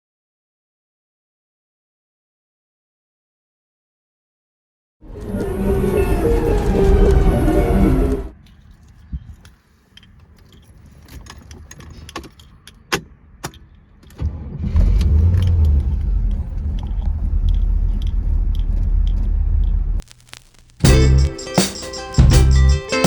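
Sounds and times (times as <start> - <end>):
car engine starting and running: 14.0 - 20.0.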